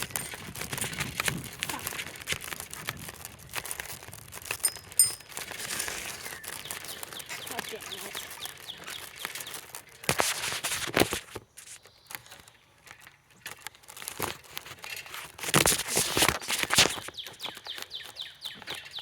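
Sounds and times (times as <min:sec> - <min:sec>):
bird chirps: 0:04.6 - 0:09.8, 0:16.9 - 0:19.0.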